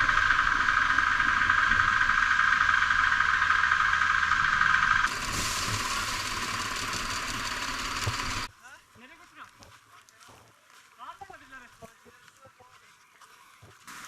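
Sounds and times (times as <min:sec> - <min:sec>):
steady loud hiss: 0:00.0 - 0:08.5.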